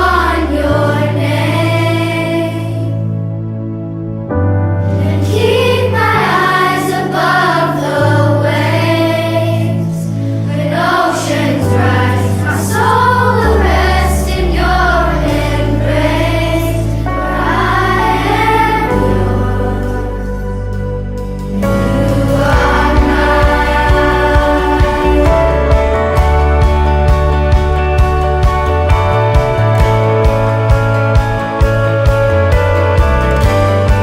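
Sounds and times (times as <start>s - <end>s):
choir singing praise song: 0.0s - 3.0s, 4.9s - 26.7s
backing track bass notes: 0.0s - 34.0s.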